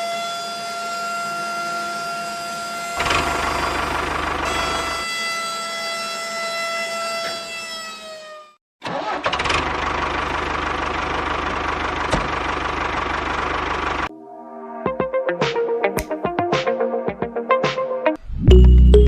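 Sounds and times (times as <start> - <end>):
small motor whining: 0.0 - 5.3
rattling mechanical running: 3.0 - 5.0, 8.9 - 14.1.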